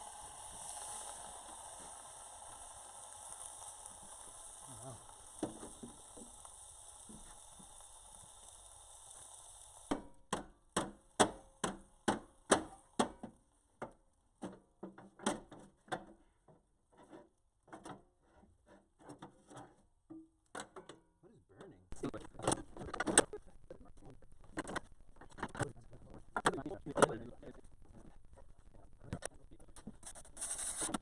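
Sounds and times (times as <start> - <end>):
steady hiss: 0.0 - 13.7, 21.9 - 31.0.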